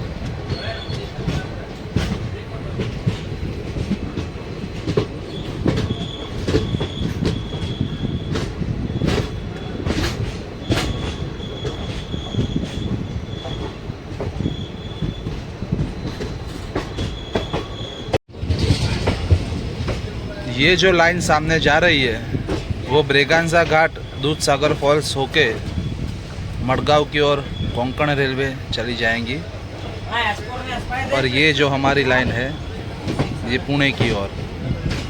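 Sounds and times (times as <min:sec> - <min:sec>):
train rumbling on track: 0:00.0 - 0:35.0
high wheel squeal: 0:00.4 - 0:01.5, 0:05.3 - 0:18.9, 0:21.7 - 0:35.0.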